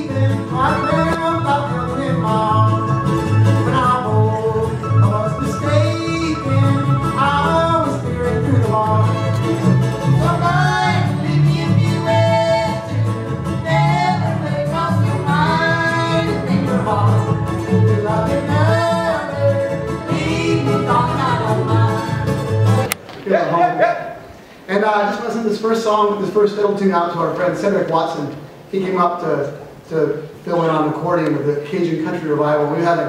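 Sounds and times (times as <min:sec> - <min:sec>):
fiddle melody: 0:00.0 - 0:22.8
string band playing fiddle tune: 0:00.0 - 0:23.0
upright bass plucking: 0:00.0 - 0:23.0.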